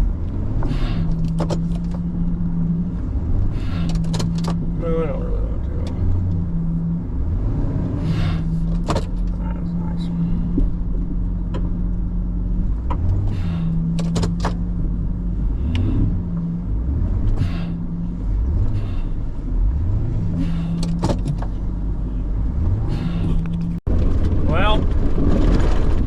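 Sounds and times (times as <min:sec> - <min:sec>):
truck engine revving: 0:00.0 - 0:26.0
sharp clicks and knocks: 0:00.6 - 0:02.1, 0:03.8 - 0:04.7, 0:08.6 - 0:09.4, 0:12.8 - 0:14.7, 0:20.7 - 0:21.6.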